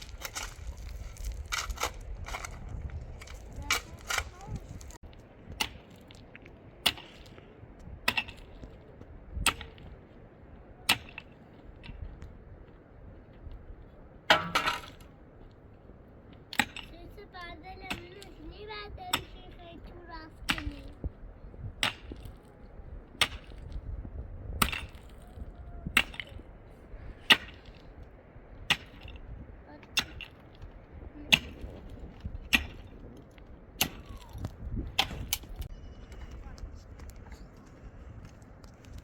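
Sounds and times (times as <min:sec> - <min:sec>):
axe chopping wood: 0:00.0 - 0:02.6, 0:03.2 - 0:04.4, 0:14.3 - 0:15.0, 0:16.5 - 0:16.9, 0:21.8 - 0:22.3, 0:23.2 - 0:23.6, 0:24.6 - 0:25.1, 0:26.0 - 0:26.4, 0:27.3 - 0:27.8, 0:28.7 - 0:29.2, 0:30.0 - 0:30.5, 0:31.3 - 0:31.8, 0:32.4 - 0:33.0, 0:33.8 - 0:35.6.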